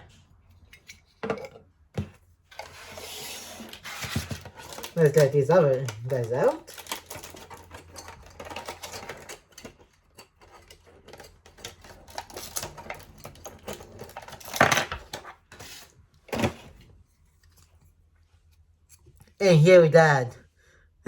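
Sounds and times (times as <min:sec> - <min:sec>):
plastic packaging clicks and crinkles: 0:03.7 - 0:15.5.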